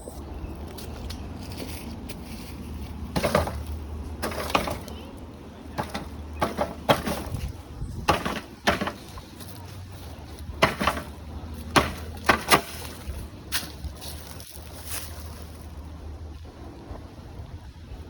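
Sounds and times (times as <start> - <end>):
wind rumble on microphone: 4.9 - 10.6, 11.2 - 18.0.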